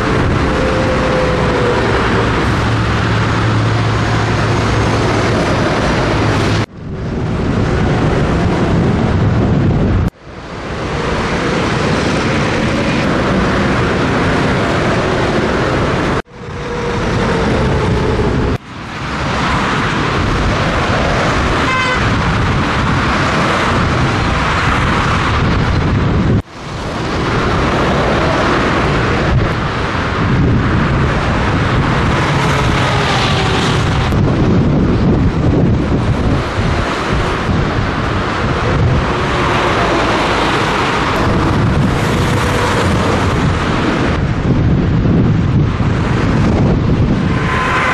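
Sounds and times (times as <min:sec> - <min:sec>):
faint truck engine: 0:00.0 - 0:21.5
wind and road noise: 0:00.0 - 0:47.9.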